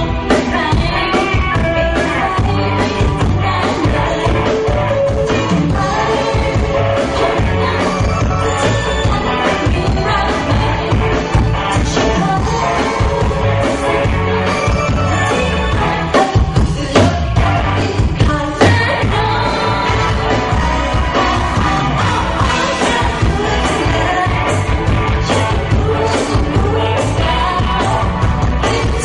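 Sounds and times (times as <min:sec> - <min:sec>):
rock band with singing: 0:00.0 - 0:29.0.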